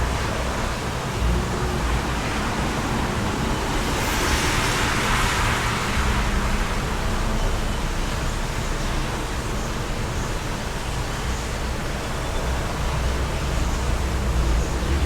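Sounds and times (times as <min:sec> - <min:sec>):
wind rushing: 0:01.2 - 0:07.7.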